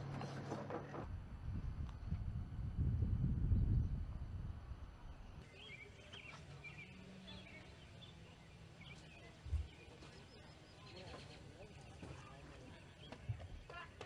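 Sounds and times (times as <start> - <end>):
faint low hum: 0.0 - 13.9
birds chirping: 4.8 - 14.0.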